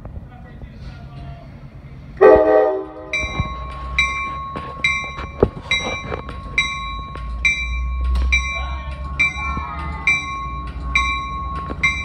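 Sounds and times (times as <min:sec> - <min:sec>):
low engine rumble: 0:00.0 - 0:12.0
locomotive bell ringing: 0:01.0 - 0:12.0
train horn blast: 0:02.2 - 0:03.4.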